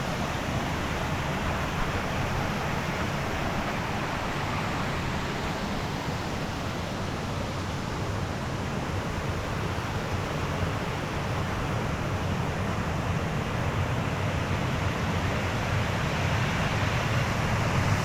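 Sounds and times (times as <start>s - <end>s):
rushing mountain stream: 0.0s - 18.0s.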